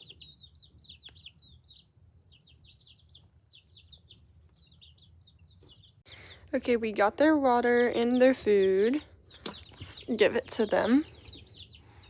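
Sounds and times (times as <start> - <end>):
baby chicks peeping: 0.0 - 12.0.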